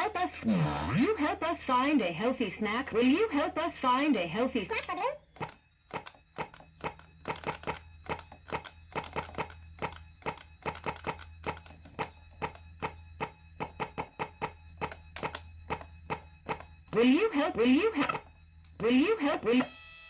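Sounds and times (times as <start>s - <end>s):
glitching toy voice: 0.0s - 5.2s, 16.9s - 20.0s
toy speaker clicks and pops: 5.4s - 17.0s.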